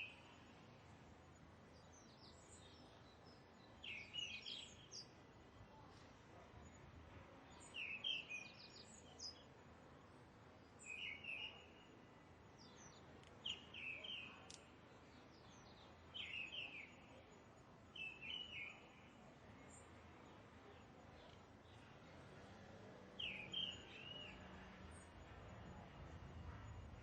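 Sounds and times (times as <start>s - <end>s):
bird chirping: 1.9s - 5.1s, 10.8s - 11.9s, 12.6s - 17.1s, 18.0s - 19.0s, 23.2s - 24.4s.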